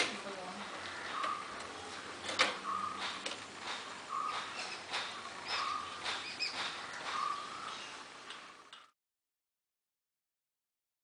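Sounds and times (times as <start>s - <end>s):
steady background hiss: 0.0s - 8.9s
high bird chirps: 2.6s - 3.1s, 4.0s - 8.0s.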